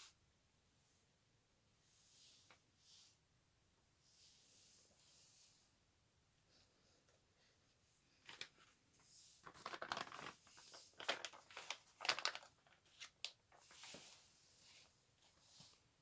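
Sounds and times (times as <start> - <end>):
crinkling and rustling handling noise: 8.1 - 16.0.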